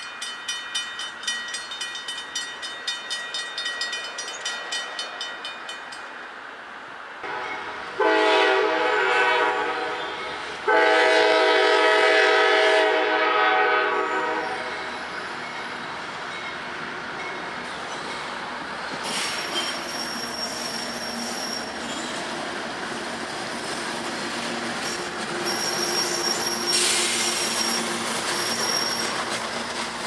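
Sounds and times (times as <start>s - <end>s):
freight train cars rolling: 0.0s - 30.0s
steel wheels squealing: 17.6s - 22.3s, 23.6s - 30.0s.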